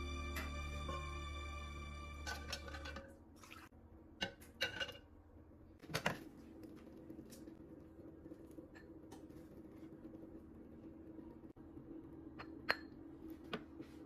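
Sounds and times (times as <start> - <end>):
background music: 0.0 - 3.0
kitchenware clinking: 2.2 - 3.1, 4.2 - 5.1, 12.4 - 13.0.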